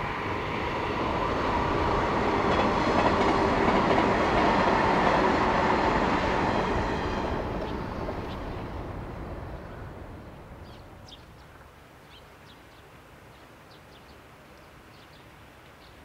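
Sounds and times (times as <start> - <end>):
passing train: 0.0 - 11.1.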